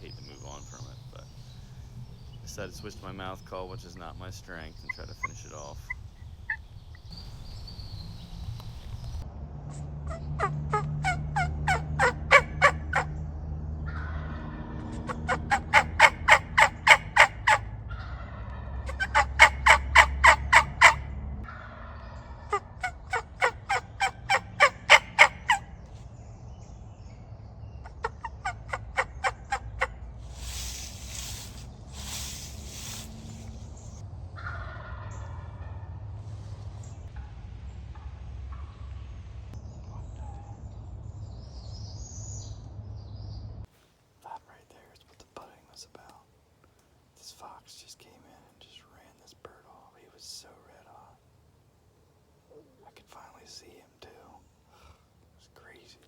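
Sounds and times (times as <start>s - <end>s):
wild turkey calls: 0.0s - 6.7s, 10.1s - 13.1s, 13.9s - 25.8s, 27.8s - 35.8s
brief rushing noises: 30.3s - 34.0s.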